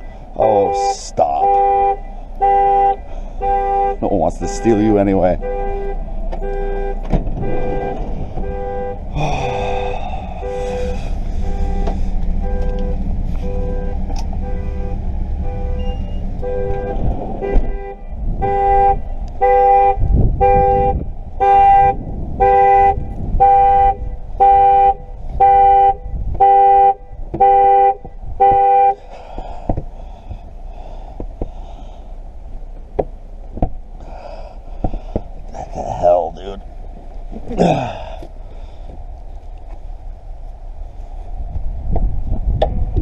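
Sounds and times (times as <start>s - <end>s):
car horn honking in pulses: 0.0s - 9.1s, 9.7s - 29.1s.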